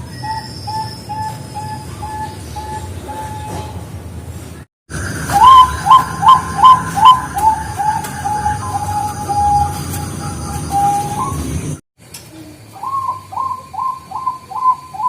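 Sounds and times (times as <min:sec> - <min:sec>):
dove cooing: 0:05.2 - 0:11.4, 0:12.3 - 0:15.0.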